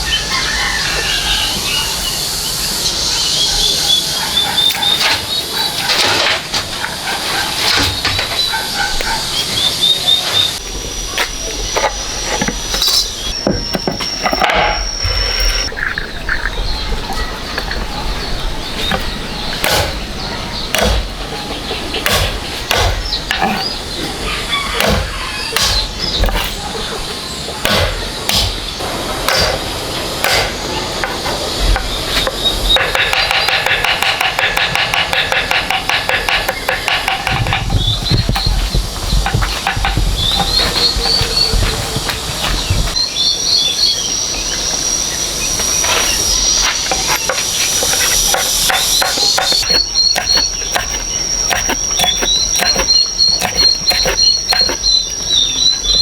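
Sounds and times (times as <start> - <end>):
sharp knocks: 20.7 - 21.2, 22.0 - 23.6, 24.8 - 26.5
high-pitched insect drone: 28.7 - 56.0
bird chirps: 36.4 - 56.0.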